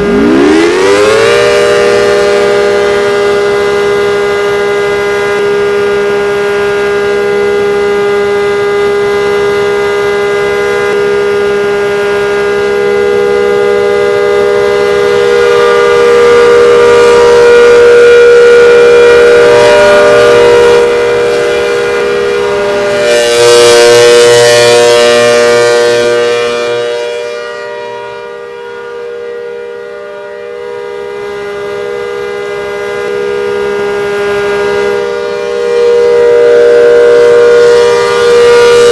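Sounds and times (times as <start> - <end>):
two-note siren: 0.0 - 38.9.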